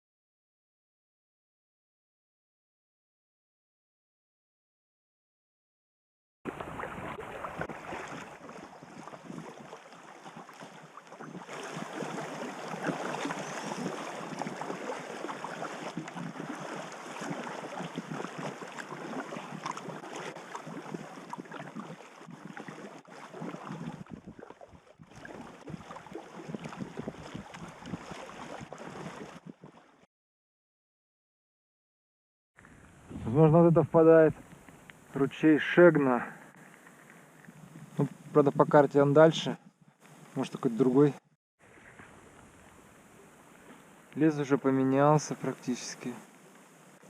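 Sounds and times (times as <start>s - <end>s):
water around a boat: 6.5s - 30.1s, 32.6s - 47.0s
heavy rain on a river: 11.5s - 22.0s.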